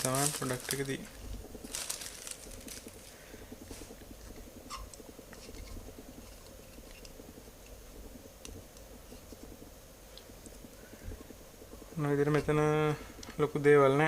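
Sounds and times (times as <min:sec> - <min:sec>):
low background crackle: 0:00.0 - 0:14.0.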